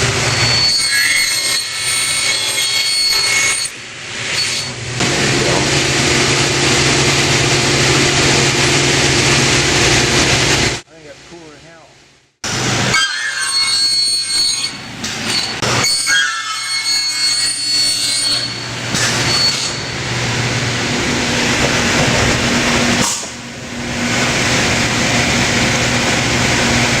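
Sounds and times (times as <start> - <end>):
circular saw cutting metal: 0.0 - 10.2, 12.5 - 27.0
blade squealing: 0.1 - 4.8, 12.9 - 20.0.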